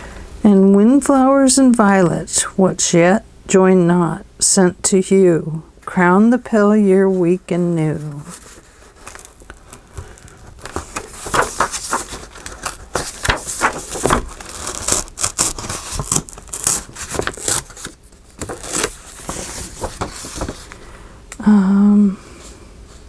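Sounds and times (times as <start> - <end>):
paper rustling and crinkling: 8.0 - 20.9.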